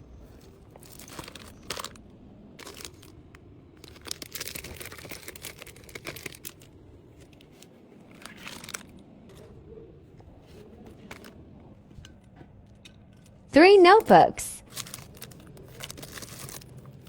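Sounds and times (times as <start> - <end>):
packaging being crumpled: 0.3 - 2.0, 2.6 - 9.5, 14.6 - 17.0.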